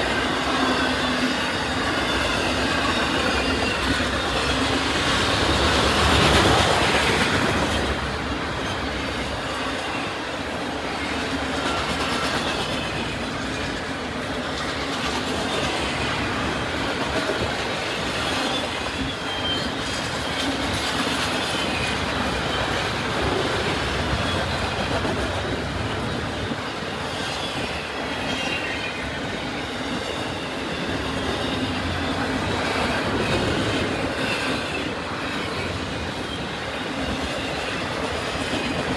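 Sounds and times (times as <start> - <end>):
train wheels on rails: 0.0 - 38.9
high wheel squeals: 17.8 - 20.6.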